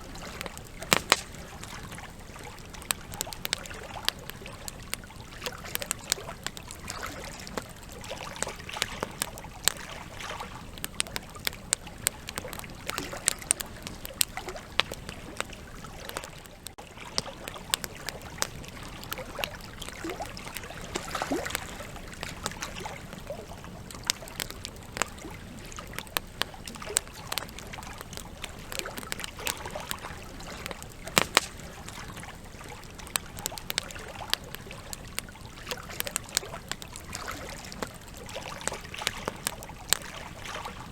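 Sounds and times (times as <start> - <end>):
campfire crackling and popping: 0.0 - 40.9
hiss of flame: 30.9 - 32.2.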